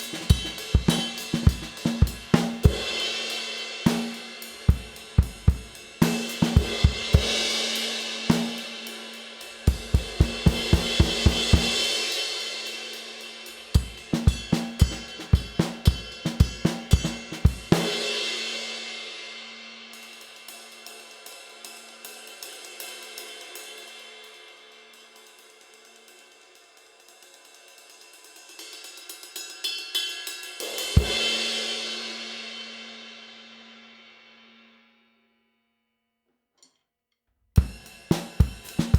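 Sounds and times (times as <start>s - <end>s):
snare drum: 0.0s - 8.8s, 9.7s - 12.0s, 13.8s - 18.2s, 37.6s - 38.9s
ride cymbal strokes: 0.0s - 19.2s.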